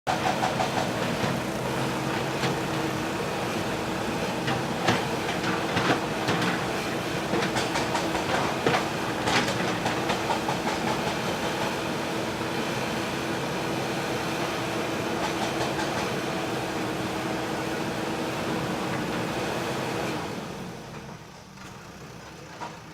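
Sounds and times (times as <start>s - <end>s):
diesel engine running: 0.1s - 22.9s.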